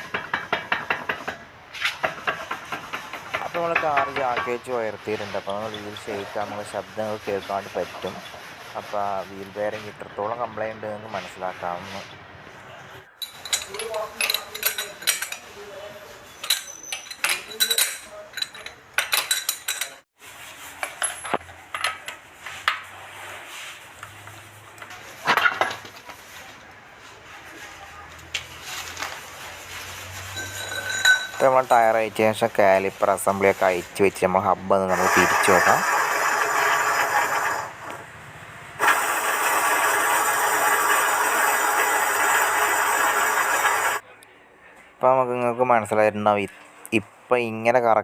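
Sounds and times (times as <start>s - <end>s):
wheel bearing grinding: 13.2s - 20.0s, 30.3s - 31.9s, 34.8s - 38.2s, 38.8s - 44.0s.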